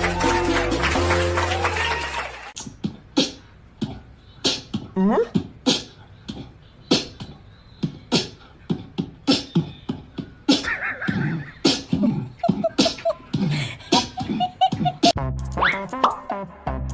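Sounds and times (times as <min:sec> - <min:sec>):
vocal sounds: 0:02.6 - 0:15.2
beatboxing mouth percussion: 0:02.6 - 0:16.2.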